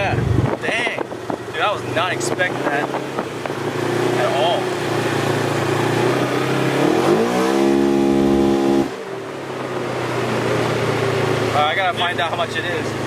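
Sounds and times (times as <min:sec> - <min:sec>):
engine idling and revving: 0:00.0 - 0:13.0.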